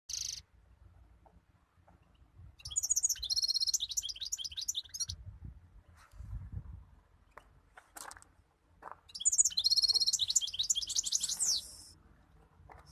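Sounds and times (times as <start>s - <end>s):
goldfinch twittering: 0.1s - 0.4s, 2.6s - 5.2s, 9.1s - 11.7s.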